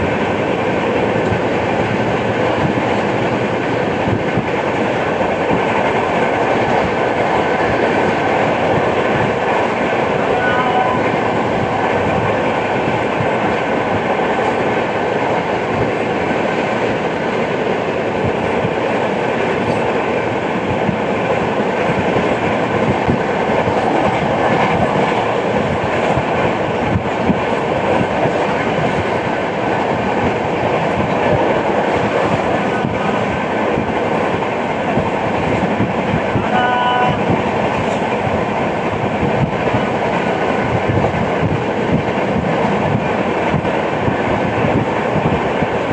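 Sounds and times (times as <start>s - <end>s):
train rolling noise: 0.0s - 45.9s
short pitched tone: 10.3s - 11.1s.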